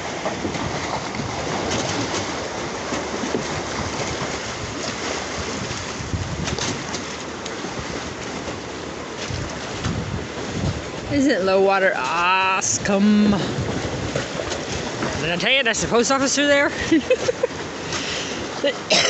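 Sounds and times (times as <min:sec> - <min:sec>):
water slaps: 0:00.0 - 0:18.7
choppy waves splashing: 0:00.0 - 0:19.0
strong wind on microphone: 0:03.7 - 0:07.0, 0:09.2 - 0:15.4.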